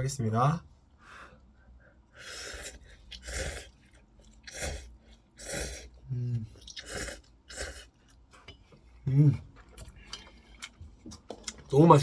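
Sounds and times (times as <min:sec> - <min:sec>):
person slurping noodles: 0:02.2 - 0:03.8, 0:04.4 - 0:08.0.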